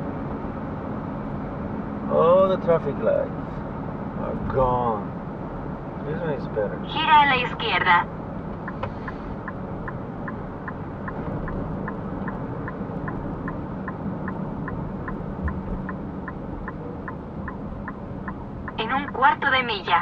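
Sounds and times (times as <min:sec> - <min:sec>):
car rumble in motion: 0:00.0 - 0:20.0
turn signal ticking: 0:06.9 - 0:20.0.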